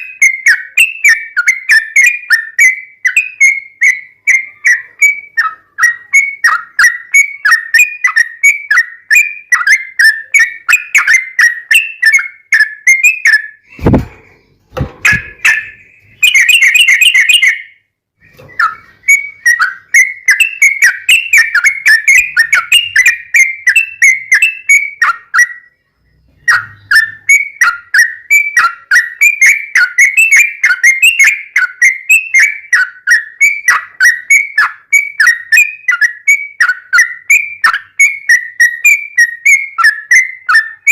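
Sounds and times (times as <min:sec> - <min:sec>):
bird whistled chirps: 0:00.0 - 0:14.0, 0:15.0 - 0:40.9.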